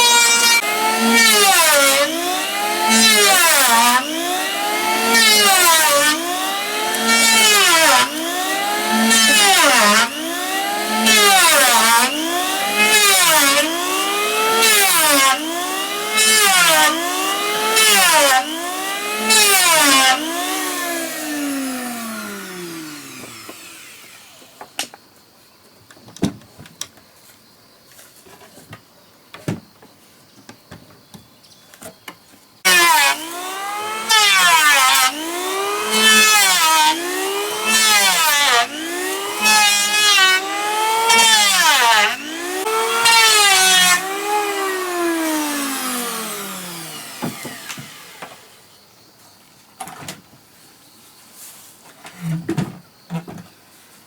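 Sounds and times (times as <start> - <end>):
electric wood planer motor: 0.0 - 24.9, 32.7 - 48.7
planer cutting hiss: 0.0 - 24.9, 32.7 - 48.6.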